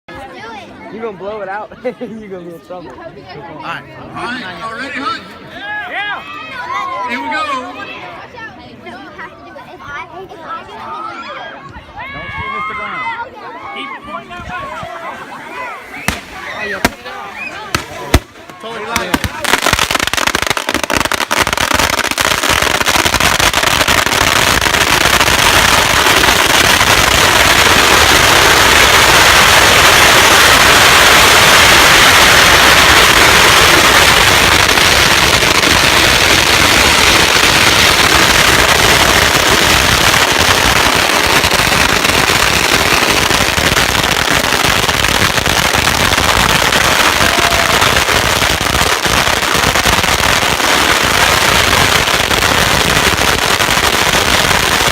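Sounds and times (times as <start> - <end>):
firecrackers popping: 15.0 - 54.9.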